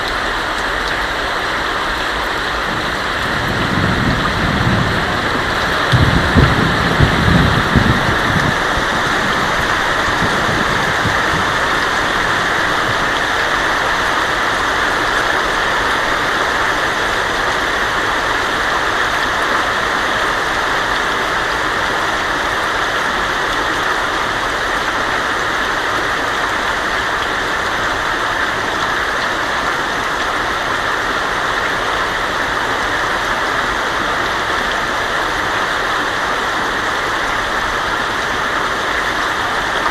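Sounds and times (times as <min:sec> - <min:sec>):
rain on a tin roof: 0:00.0 - 0:39.9
thunder rumble: 0:02.5 - 0:13.4.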